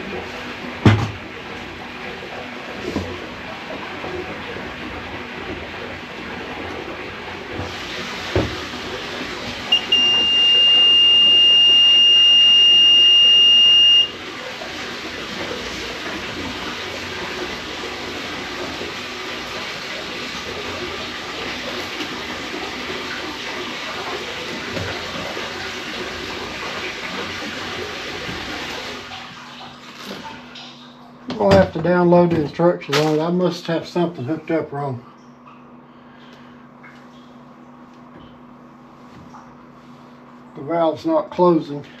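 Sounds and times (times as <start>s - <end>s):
water running: 0.0s - 35.5s
high electronic alarm beep: 9.7s - 14.1s.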